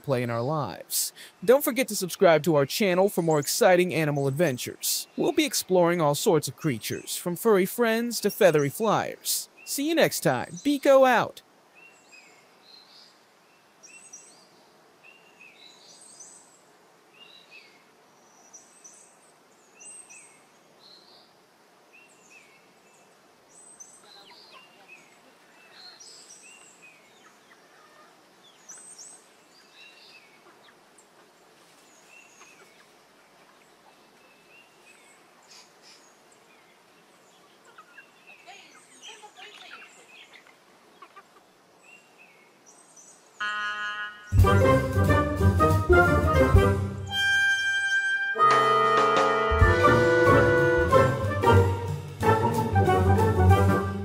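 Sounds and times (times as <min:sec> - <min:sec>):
birds chirping: 0:00.0 - 0:16.6, 0:22.0 - 0:44.9
steady hiss: 0:00.0 - 0:24.0, 0:24.8 - 0:43.4.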